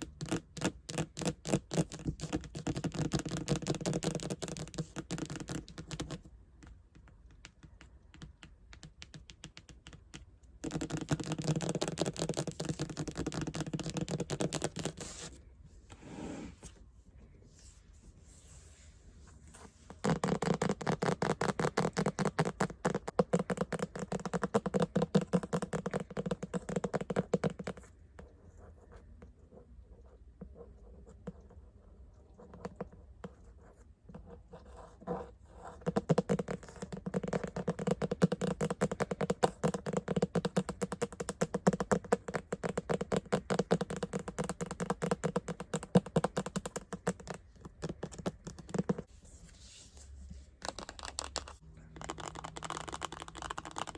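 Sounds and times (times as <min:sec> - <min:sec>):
fingers tapping and scratching: 0:00.0 - 0:15.4, 0:19.9 - 0:28.3, 0:35.0 - 0:49.1, 0:50.6 - 0:53.9.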